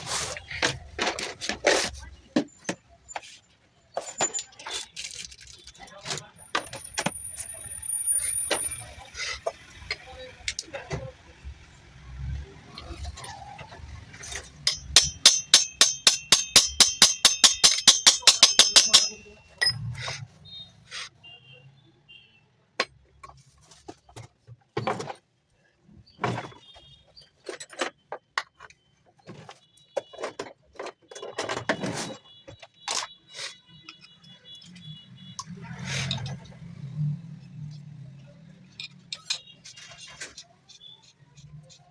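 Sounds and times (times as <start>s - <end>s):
clicks and knocks on metal parts: 14.2s - 19.9s, 38.6s - 40.4s
ringing metal taps: 14.6s - 20.0s.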